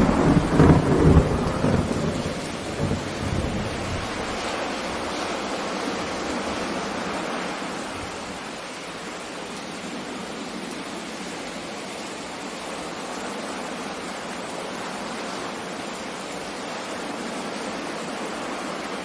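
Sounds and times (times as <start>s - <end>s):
sea surf: 0.0s - 10.5s, 12.6s - 19.0s
rain: 0.0s - 19.0s.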